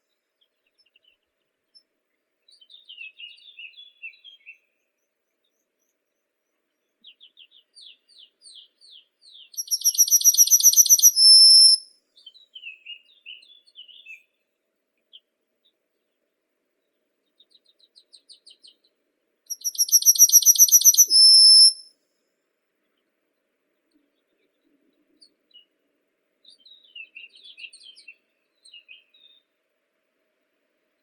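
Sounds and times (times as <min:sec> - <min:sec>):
soft bird chirps: 0:00.0 - 0:14.4, 0:15.0 - 0:21.8, 0:26.4 - 0:29.6
songbird trilling: 0:09.6 - 0:11.8, 0:19.5 - 0:21.8.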